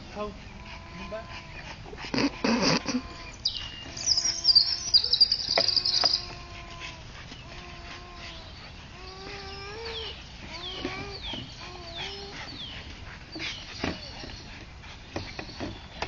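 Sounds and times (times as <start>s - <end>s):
birds trilling and chirping: 0.0s - 16.0s.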